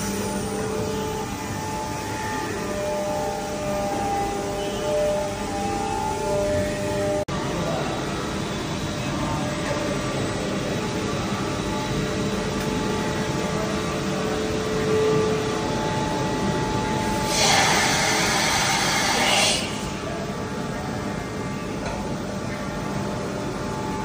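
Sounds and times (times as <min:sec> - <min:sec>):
machine hum with whining tones: 0:00.0 - 0:24.0
hiss: 0:17.2 - 0:19.9.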